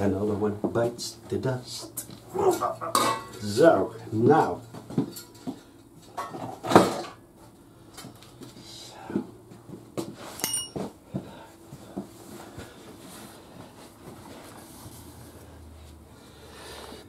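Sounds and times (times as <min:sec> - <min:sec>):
metal tools clanking: 0:02.5 - 0:03.6, 0:04.6 - 0:07.2, 0:10.4 - 0:10.9
ringing metal clink: 0:10.4 - 0:10.9.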